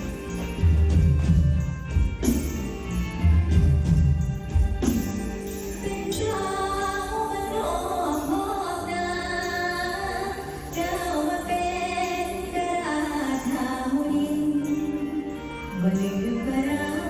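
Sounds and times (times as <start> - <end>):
band accompaniment: 0.0 - 7.4
woman singing wavering notes: 5.8 - 17.0.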